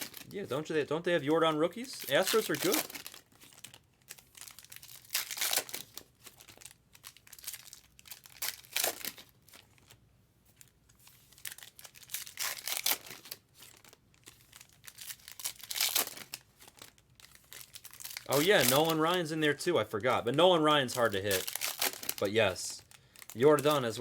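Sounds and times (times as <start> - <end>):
cards being handled: 0.0 - 3.7, 8.5 - 24.0
wrappers crinkling and tearing: 0.0 - 24.0.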